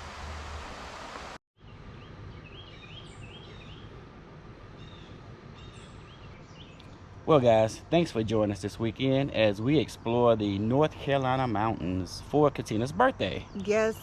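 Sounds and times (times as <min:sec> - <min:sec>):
birds chirping: 0:01.6 - 0:04.0, 0:04.7 - 0:08.1, 0:09.1 - 0:12.1, 0:12.7 - 0:14.0.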